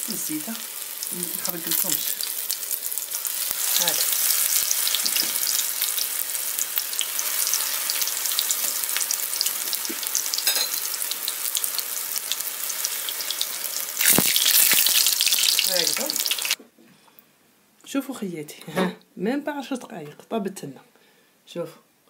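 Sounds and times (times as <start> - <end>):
fritters sizzling in hot oil: 0.0 - 16.6.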